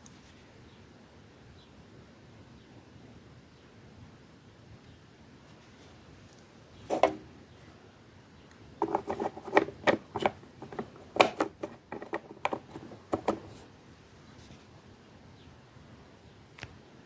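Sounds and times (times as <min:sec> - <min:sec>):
sharp clicks and taps: 0:08.8 - 0:13.6.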